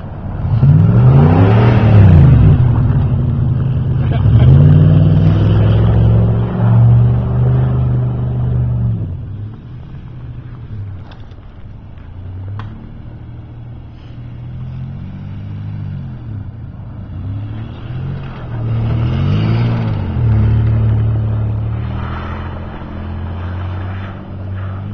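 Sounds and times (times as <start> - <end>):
truck engine revving: 0.0 - 24.9.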